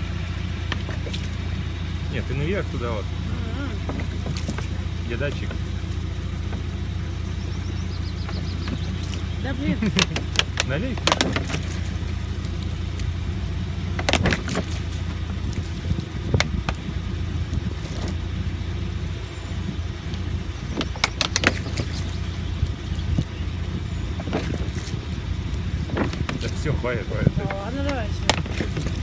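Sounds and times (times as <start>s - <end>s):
car engine humming: 0.0s - 29.0s
water poured on windshield: 24.2s - 26.8s, 28.2s - 29.0s.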